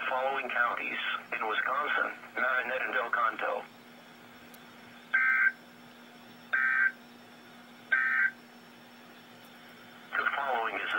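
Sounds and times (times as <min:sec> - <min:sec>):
faint steady hum: 0:00.0 - 0:10.9
buzzing digital data tones: 0:05.1 - 0:05.6, 0:06.5 - 0:07.0, 0:07.9 - 0:08.4.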